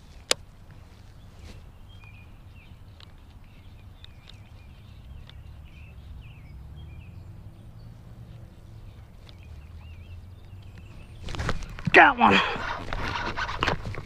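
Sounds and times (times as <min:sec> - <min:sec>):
songbirds chirping: 0:00.0 - 0:14.0
faint clicks: 0:02.9 - 0:05.6, 0:08.3 - 0:09.8.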